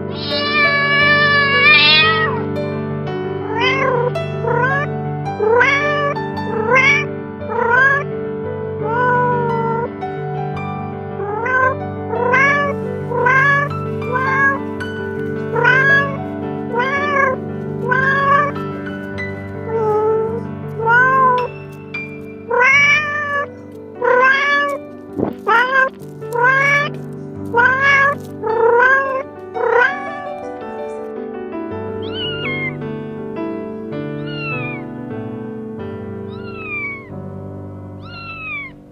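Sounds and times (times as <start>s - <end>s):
kitten meowing: 0.0s - 2.5s, 3.5s - 8.0s, 8.8s - 9.9s, 11.2s - 30.5s, 32.0s - 32.8s, 34.2s - 34.9s, 36.2s - 37.2s, 38.0s - 38.9s
soft background music: 0.0s - 38.9s.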